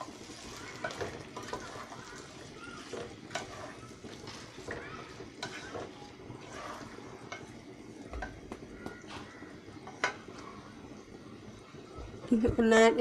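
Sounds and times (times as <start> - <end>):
spatula scraping cooking pot: 0.4 - 8.4.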